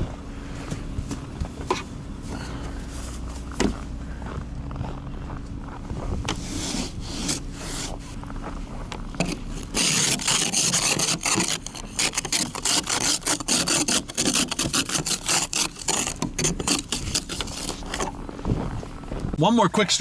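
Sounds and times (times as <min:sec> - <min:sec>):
ice scraper scraping car window: 0:06.3 - 0:08.2, 0:09.1 - 0:18.5.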